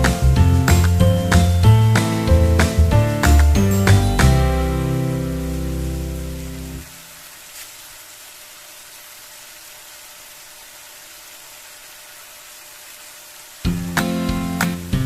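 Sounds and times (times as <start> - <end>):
background music: 0.0 - 6.8, 13.7 - 15.0
fish sizzling in hot oil: 0.0 - 15.0.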